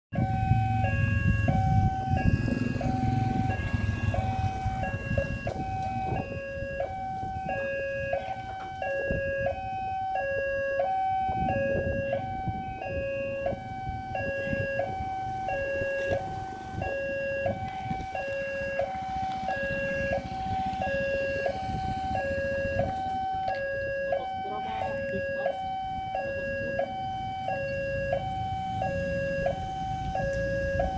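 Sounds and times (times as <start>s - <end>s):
level crossing two-tone alarm: 0.1s - 30.9s.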